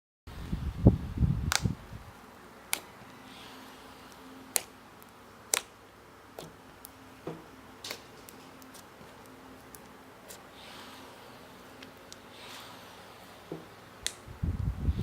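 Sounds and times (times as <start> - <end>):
slime clicking: 1.5 - 1.8, 2.7 - 2.9, 4.5 - 5.7.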